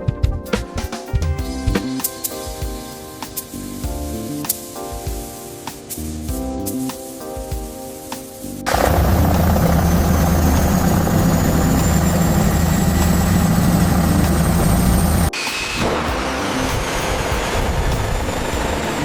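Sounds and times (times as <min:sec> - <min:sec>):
helicopter engine whine: 0:08.7 - 0:19.0.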